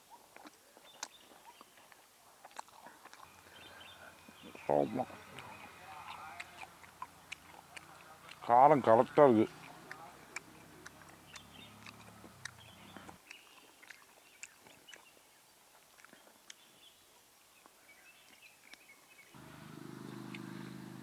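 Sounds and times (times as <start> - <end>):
soft chewing: 0.0 - 19.4
mouth clicks: 0.2 - 15.2, 15.8 - 16.6
faint bird chirps: 3.2 - 6.5.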